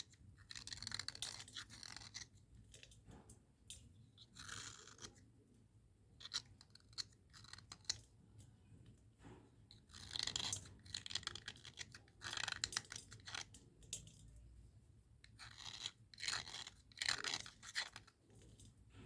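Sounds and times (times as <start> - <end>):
slate pencil scraping: 0.0 - 2.9, 4.2 - 5.2, 9.7 - 13.5, 15.2 - 18.6.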